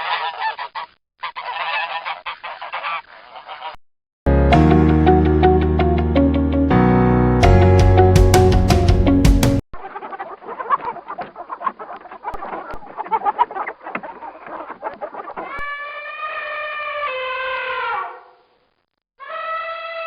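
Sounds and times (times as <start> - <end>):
chickens clucking: 0.0 - 3.8, 9.8 - 15.8
rooster crowing: 19.2 - 20.0.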